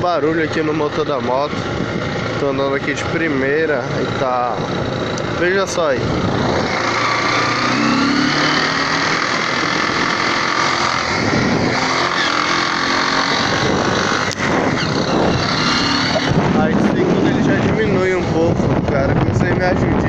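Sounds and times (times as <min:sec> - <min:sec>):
motorcycle engine running: 0:00.0 - 0:20.0
high whining tones: 0:05.9 - 0:17.4.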